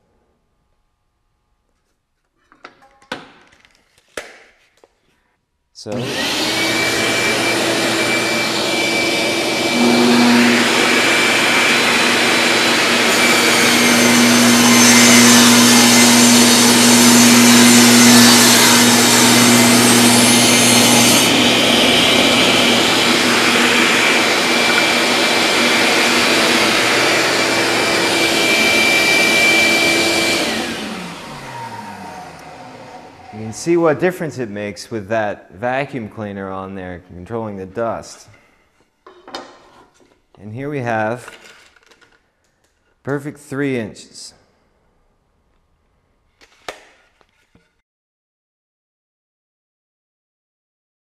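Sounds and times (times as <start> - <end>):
vacuum cleaner whirring: 5.8 - 34.1
table saw running: 5.9 - 34.1
saw blade ripping wood: 9.6 - 28.0.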